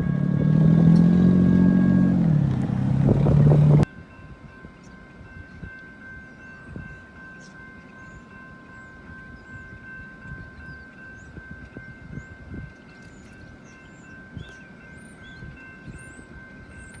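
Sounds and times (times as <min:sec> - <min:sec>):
train cars rumbling past: 0:00.0 - 0:03.9.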